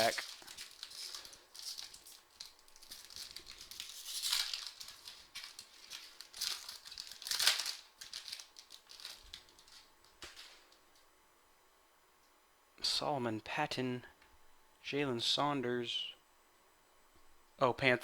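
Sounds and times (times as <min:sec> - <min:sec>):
wrapper crinkling and tearing: 0:00.0 - 0:10.8.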